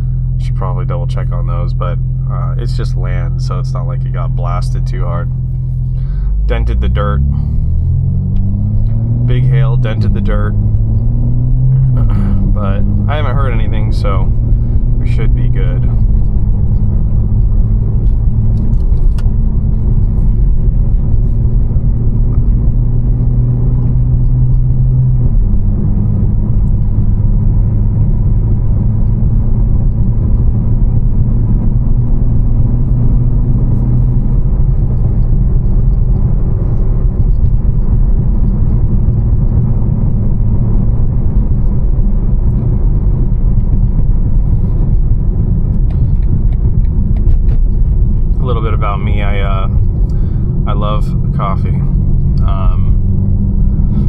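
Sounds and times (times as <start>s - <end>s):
car engine drone: 0.0s - 54.0s
road rumble: 0.0s - 54.0s.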